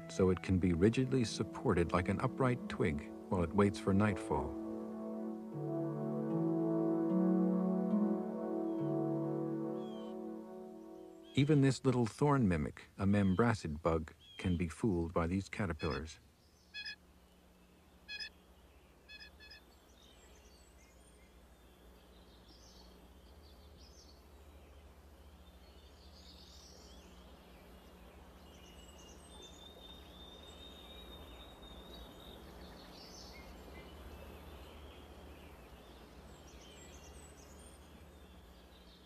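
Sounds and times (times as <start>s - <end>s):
low constant hum: 0.0s - 39.0s
faint high bird chirps: 16.6s - 39.0s.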